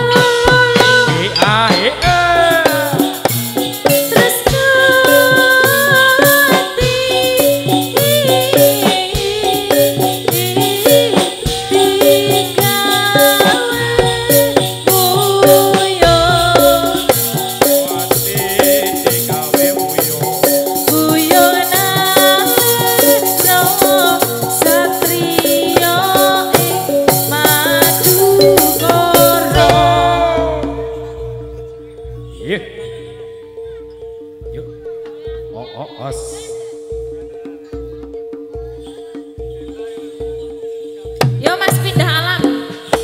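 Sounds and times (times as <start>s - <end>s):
melodic instruments playing: 0.0s - 42.8s
drums: 0.0s - 43.0s
rattling jingling percussion: 0.0s - 43.0s.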